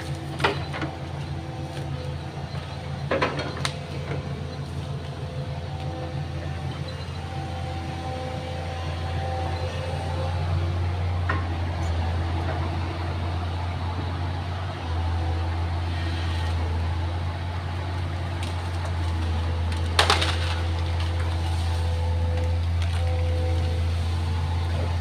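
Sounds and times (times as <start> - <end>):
excavator diesel engine running: 0.0 - 25.0
wood splintering crack: 19.6 - 21.7.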